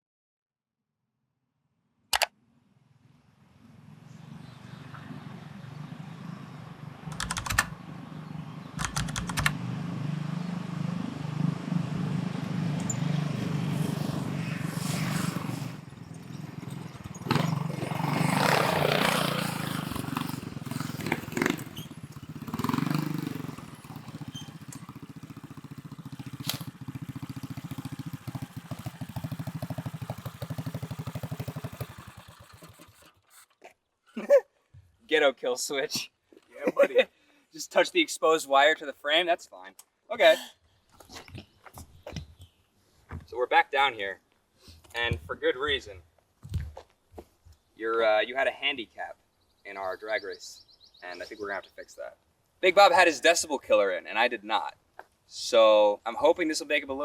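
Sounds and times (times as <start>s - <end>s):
go-kart engine passing: 2.8s - 33.6s.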